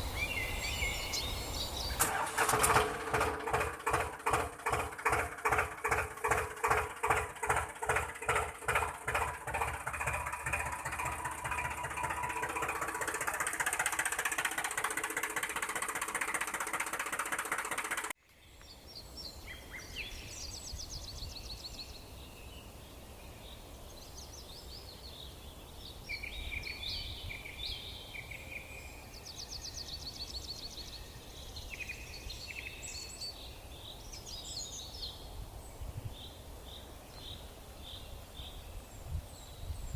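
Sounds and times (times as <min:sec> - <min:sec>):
small birds chirping: 0:00.0 - 0:02.5, 0:03.6 - 0:39.9
faint outdoor background noise: 0:00.0 - 0:39.9
engine running: 0:01.8 - 0:18.2.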